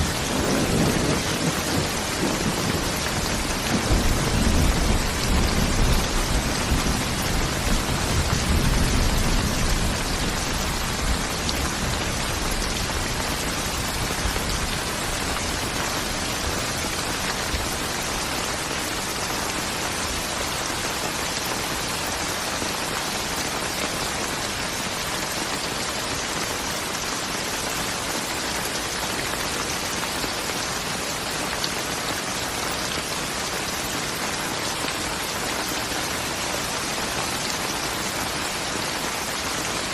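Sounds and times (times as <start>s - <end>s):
thunder rumble: 0.0s - 15.8s
heavy rain falling: 0.0s - 39.9s.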